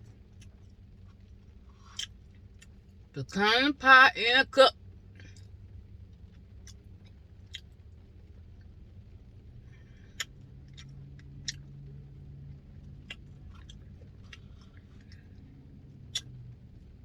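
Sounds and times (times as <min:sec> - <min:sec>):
person chewing ice cream: 0:00.2 - 0:02.8, 0:10.0 - 0:16.5
wet mouth-smacking clicks: 0:01.9 - 0:02.8, 0:10.2 - 0:11.7, 0:12.9 - 0:15.1, 0:16.0 - 0:16.4.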